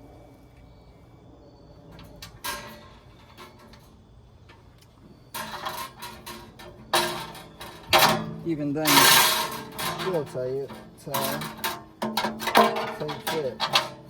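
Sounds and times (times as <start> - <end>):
metal clank: 1.9 - 4.0, 5.3 - 14.0
metal scraping and rattling: 1.9 - 14.0.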